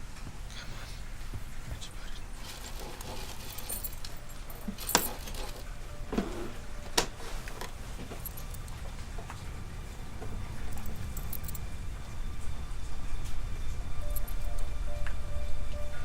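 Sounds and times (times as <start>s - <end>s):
small metal objects jingling: 2.4s - 5.8s, 8.1s - 8.8s, 10.6s - 11.6s.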